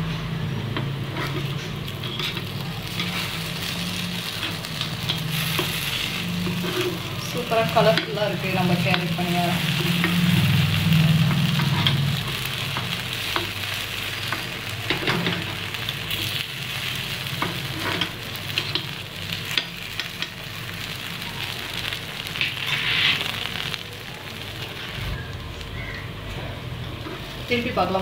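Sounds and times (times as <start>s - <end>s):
low hum: 0.0s - 13.7s
batter sizzling in oil: 0.4s - 26.1s.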